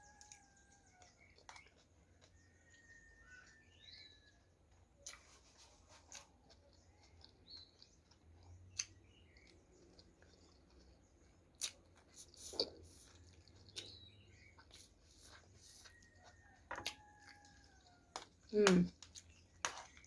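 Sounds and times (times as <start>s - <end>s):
faint bird chirps: 0.0s - 5.3s
eating clicks and smacks: 6.1s - 20.0s.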